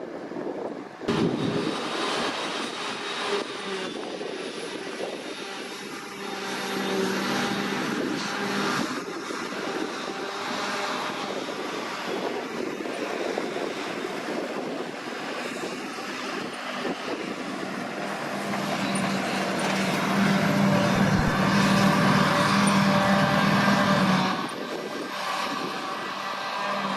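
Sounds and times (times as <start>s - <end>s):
tractor diesel engine under load: 1.0s - 26.9s.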